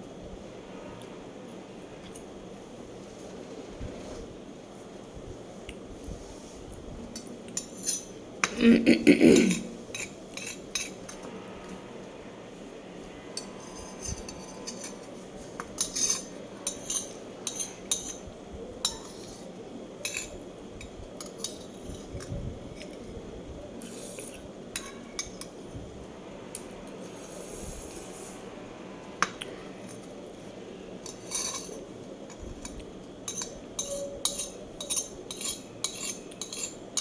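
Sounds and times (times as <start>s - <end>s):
low background noise: 0.0s - 37.0s
cutlery clinking against dishes: 9.3s - 11.2s, 13.4s - 23.0s, 23.8s - 25.6s, 31.0s - 37.0s.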